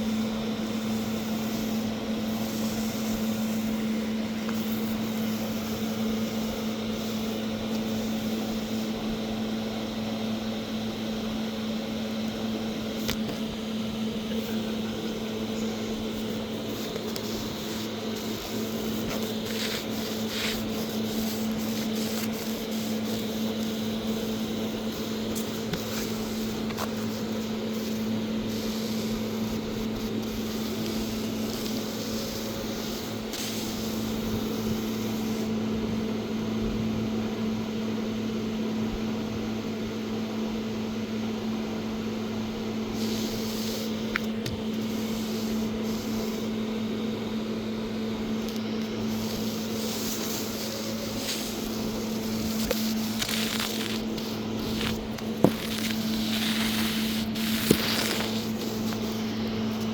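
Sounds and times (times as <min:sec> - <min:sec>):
machine hum: 0:00.0 - 0:35.4, 0:42.9 - 0:59.9
even hiss: 0:14.3 - 0:35.5, 0:48.4 - 0:59.9.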